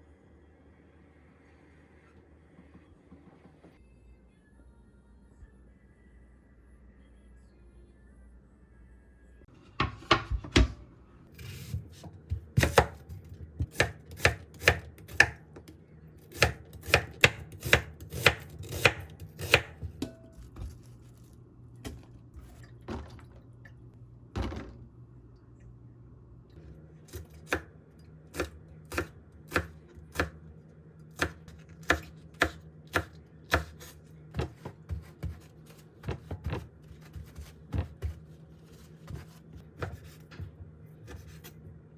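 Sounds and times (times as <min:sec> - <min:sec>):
knife chopping on cutting board: 0:11.4 - 0:15.7, 0:16.3 - 0:20.8, 0:31.2 - 0:41.5.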